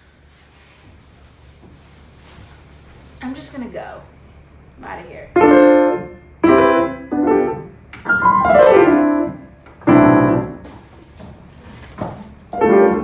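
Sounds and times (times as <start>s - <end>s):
piano playing chords: 5.3s - 10.7s, 12.5s - 13.0s.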